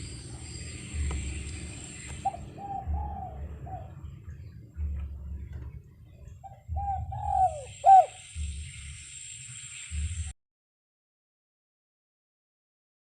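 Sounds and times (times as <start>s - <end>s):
low rumbling: 0.0s - 10.3s
dove cooing: 0.9s - 8.9s.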